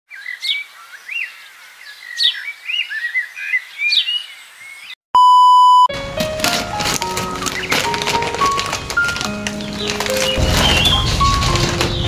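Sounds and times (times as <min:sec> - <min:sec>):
electronic beep: 0:05.2 - 0:05.9.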